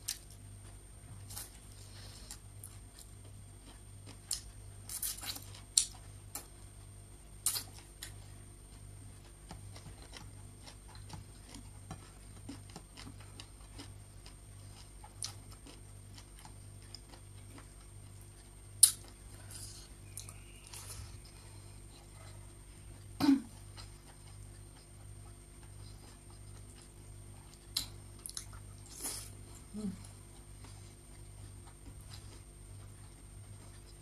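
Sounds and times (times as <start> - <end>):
person chewing: 0.0 - 6.5, 7.4 - 34.0
faint low hum: 0.0 - 34.0.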